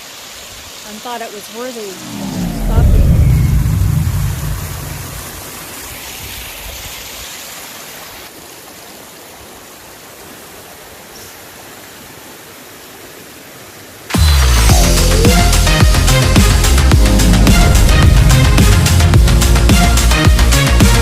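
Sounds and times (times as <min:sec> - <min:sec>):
music: 0:14.1 - 0:21.0.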